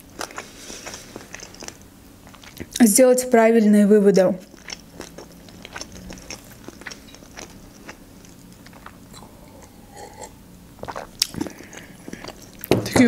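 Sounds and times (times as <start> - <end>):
wet chewing mouth clicks: 4.4 - 10.2, 10.8 - 12.7.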